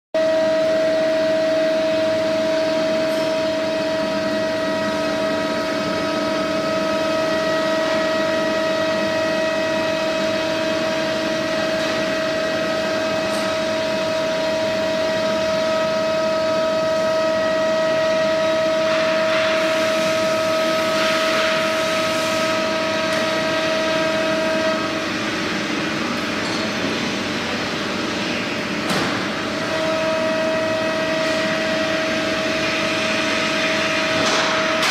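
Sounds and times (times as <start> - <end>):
router spindle high whine: 0.2 - 34.9
hiss of cutting fiber board: 31.0 - 34.9.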